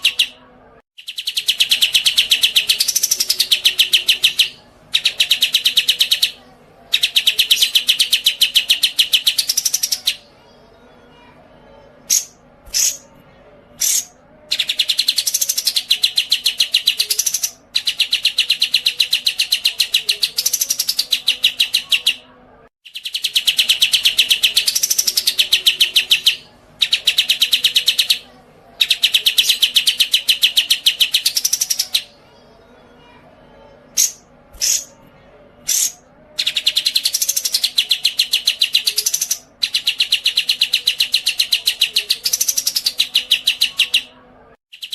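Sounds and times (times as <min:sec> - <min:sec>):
songbird chirps: 0:00.0 - 0:44.9
bird chattering trills: 0:35.7 - 0:44.1.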